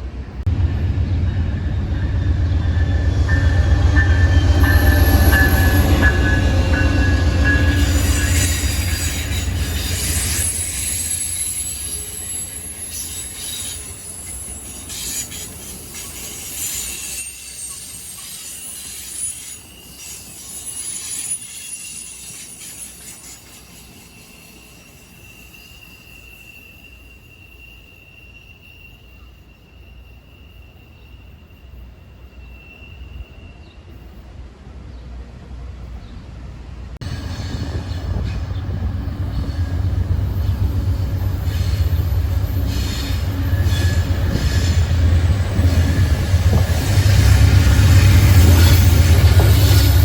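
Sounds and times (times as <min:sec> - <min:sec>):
rail clicks: 0:00.0 - 0:24.4, 0:37.0 - 0:50.0
train rumbling past: 0:00.0 - 0:50.0
wheel squeal: 0:02.8 - 0:33.7, 0:37.0 - 0:50.0.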